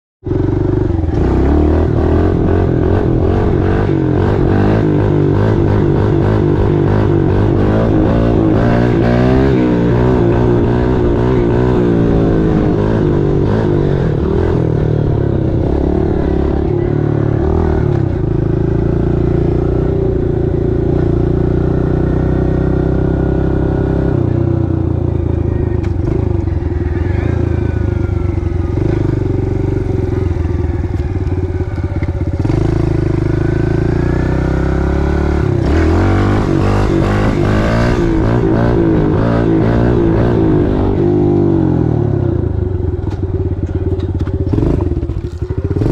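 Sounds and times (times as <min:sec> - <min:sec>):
small motorbike engine revving: 0:25.6 - 0:45.9.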